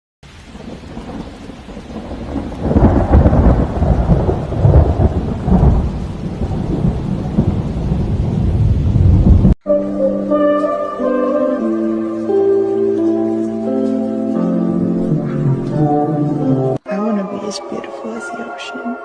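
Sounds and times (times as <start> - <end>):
steady rain: 0.2 - 9.6, 11.2 - 16.4
thunder rolling: 0.5 - 9.6.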